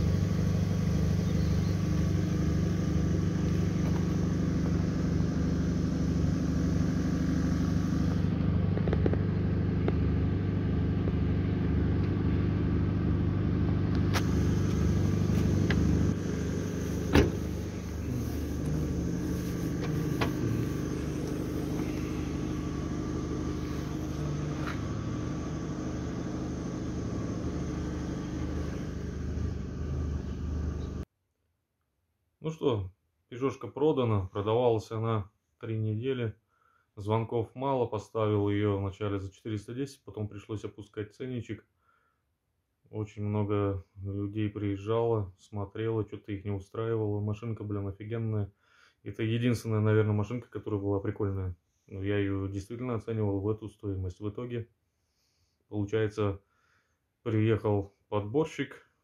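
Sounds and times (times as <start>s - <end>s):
car engine drone: 0.0s - 31.0s.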